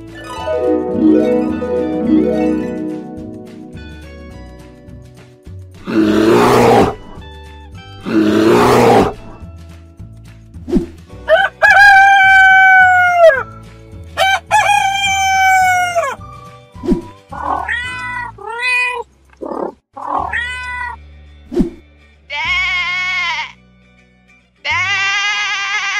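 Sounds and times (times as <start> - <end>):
background music with beat: 0.0 - 6.2
rooster crowing: 11.3 - 13.4, 14.2 - 16.2
cat meowing: 17.4 - 21.0.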